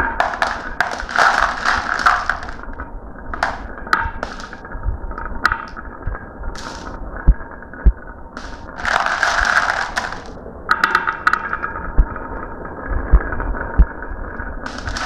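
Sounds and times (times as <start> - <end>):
marbles dropping and knocking: 0.0 - 4.6, 5.4 - 5.8, 6.6 - 7.0, 8.4 - 11.6, 14.7 - 15.0
marbles rolling down a track: 0.0 - 4.6, 5.4 - 5.8, 6.6 - 6.9, 8.4 - 11.7, 14.6 - 15.0.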